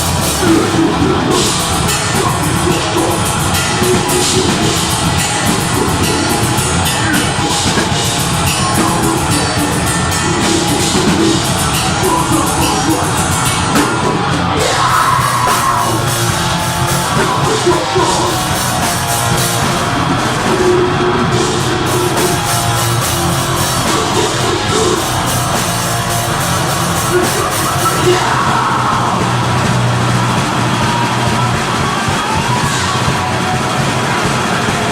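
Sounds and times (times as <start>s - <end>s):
distorted guitars: 0.0s - 34.9s
fast dense drumming: 0.0s - 34.9s.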